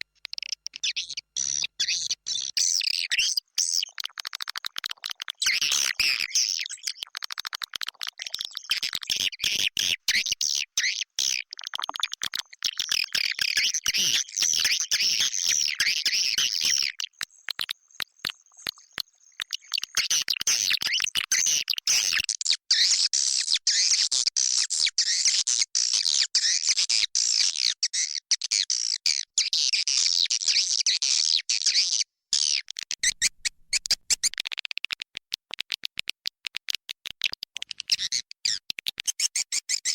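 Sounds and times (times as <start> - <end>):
swiftlets twittering and chirping: 33.0 - 34.3.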